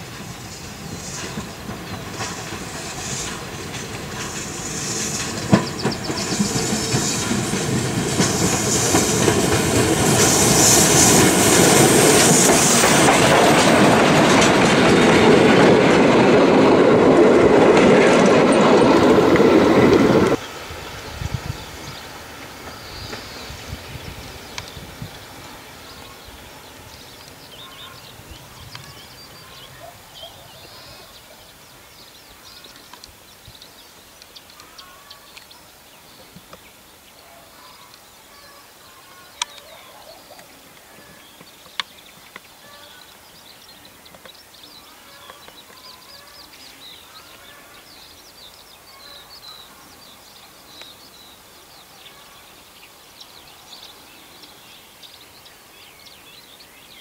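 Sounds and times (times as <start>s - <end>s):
birds singing and chirping: 5.0s - 7.7s, 18.1s - 57.0s.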